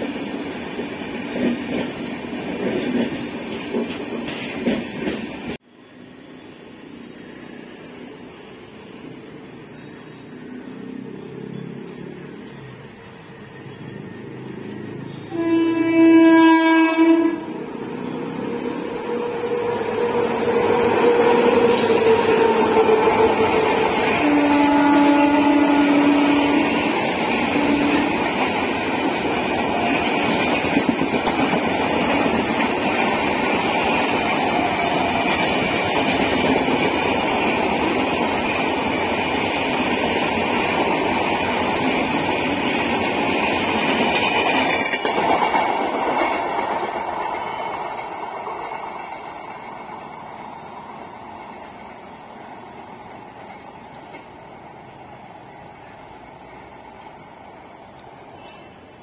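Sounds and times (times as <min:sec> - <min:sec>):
train coaches rumbling past: 0:00.0 - 0:59.0
train horn blast: 0:15.0 - 0:17.7, 0:18.8 - 0:28.4.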